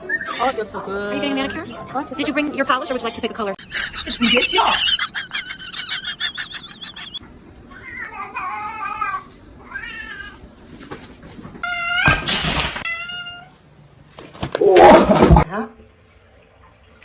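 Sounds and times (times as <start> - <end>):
cat meowing: 7.7 - 10.5.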